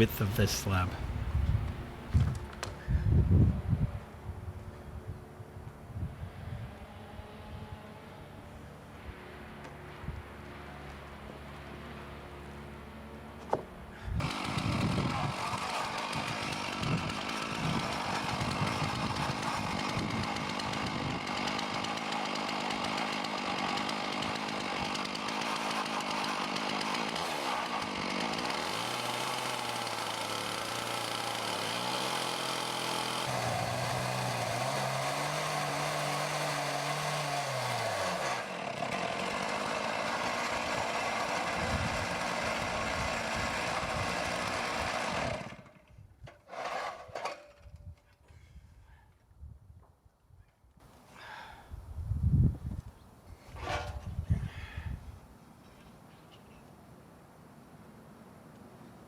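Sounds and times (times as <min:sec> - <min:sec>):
chainsaw cutting log: 0:00.0 - 0:02.8, 0:13.4 - 0:48.2.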